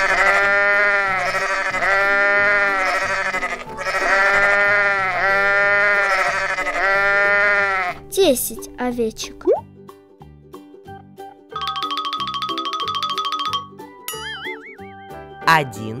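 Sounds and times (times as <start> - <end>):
sheep bleating: 0.0 - 8.0.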